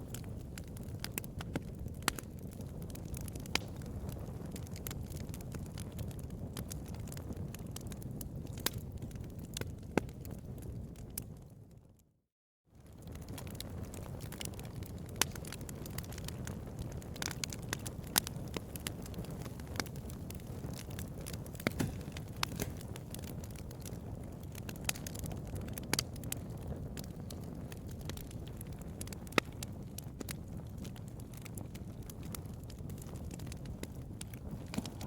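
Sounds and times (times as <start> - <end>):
wood fire crackling and popping: 0.0 - 11.8, 12.8 - 35.0.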